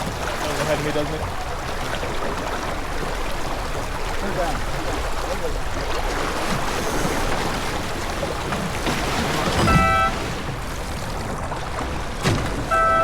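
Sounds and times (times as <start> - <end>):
water rushing along a hull: 0.0 - 13.0
short horn blast: 9.6 - 10.2, 12.7 - 13.0.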